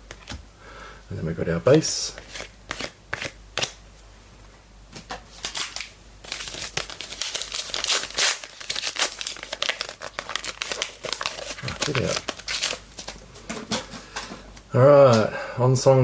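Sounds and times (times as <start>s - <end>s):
foil wrapper crinkling and tearing: 5.4s - 13.2s.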